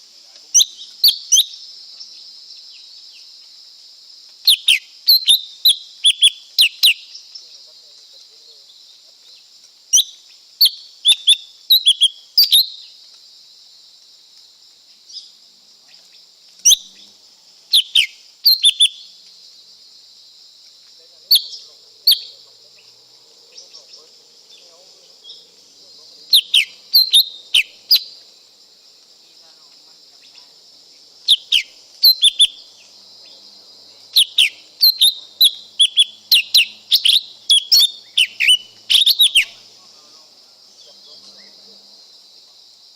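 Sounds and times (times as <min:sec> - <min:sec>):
high-pitched hiss: 0:00.0 - 0:42.9
bird calling sharp notes: 0:26.3 - 0:28.2, 0:31.3 - 0:32.7, 0:34.2 - 0:39.6.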